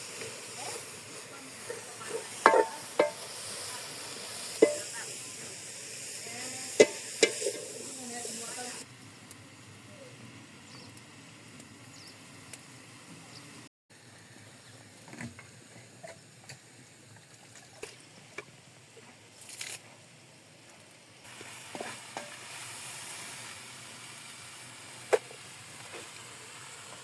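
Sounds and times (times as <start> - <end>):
food sizzling in pot: 0.0 - 9.8, 21.2 - 27.0
utensil clinking on pot: 2.4 - 3.3, 4.6 - 4.9, 6.8 - 7.7.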